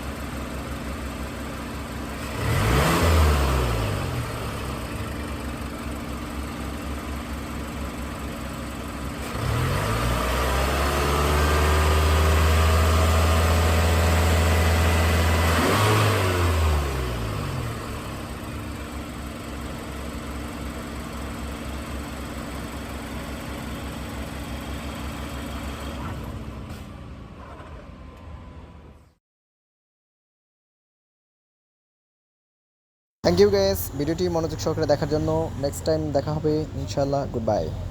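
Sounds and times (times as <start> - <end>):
car engine revving: 2.2 - 5.6, 9.2 - 18.8, 33.3 - 37.9.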